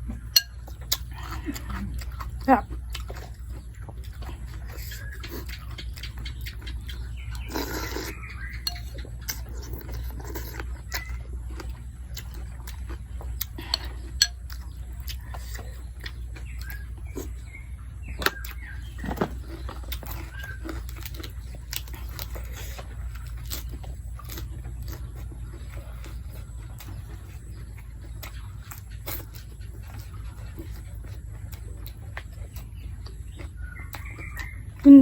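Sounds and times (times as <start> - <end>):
chewing: 0.0 - 35.0
slurping: 7.2 - 17.6.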